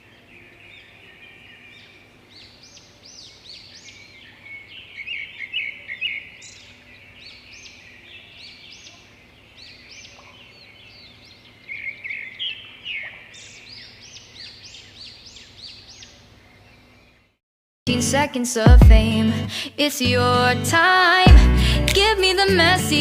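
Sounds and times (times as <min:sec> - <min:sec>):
small birds chirping: 0:00.0 - 0:17.4.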